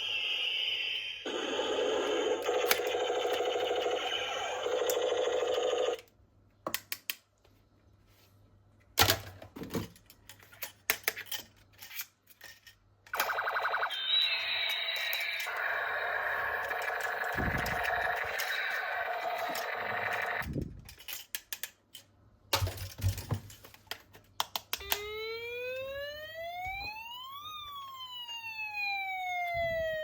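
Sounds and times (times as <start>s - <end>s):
toy gun pulsing electronic tone: 0.0s - 6.0s, 13.1s - 20.5s.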